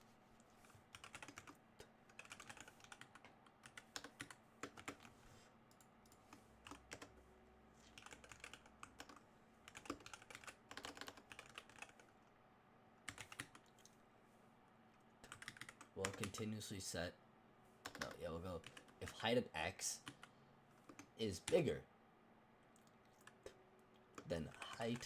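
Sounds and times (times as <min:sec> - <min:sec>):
computer keyboard typing: 0:00.9 - 0:05.1, 0:05.7 - 0:07.1, 0:07.9 - 0:12.1, 0:13.1 - 0:13.9, 0:15.2 - 0:16.4, 0:17.8 - 0:19.2, 0:20.0 - 0:21.6, 0:24.2 - 0:25.0.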